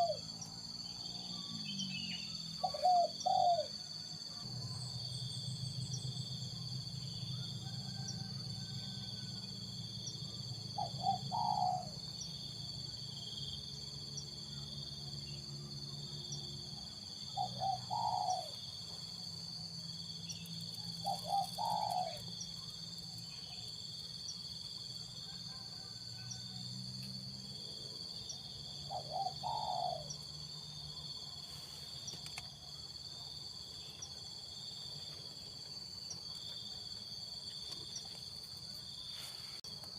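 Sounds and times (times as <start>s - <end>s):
dove cooing: 0.0s - 0.3s, 2.6s - 3.8s, 10.8s - 12.0s, 17.4s - 18.6s, 21.0s - 22.3s, 28.9s - 30.2s.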